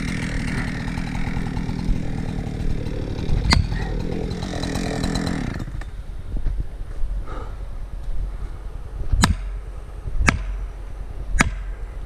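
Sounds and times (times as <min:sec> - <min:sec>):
chainsaw engine running: 0:00.0 - 0:06.0.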